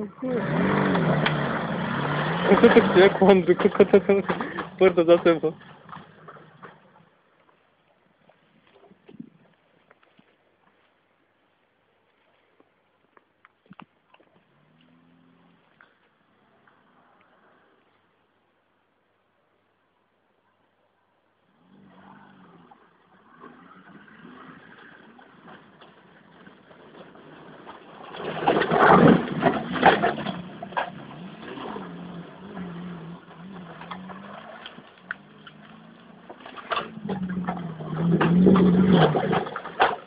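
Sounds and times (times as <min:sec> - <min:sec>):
rally car engine revving: 0:00.0 - 0:07.0, 0:21.5 - 0:40.0.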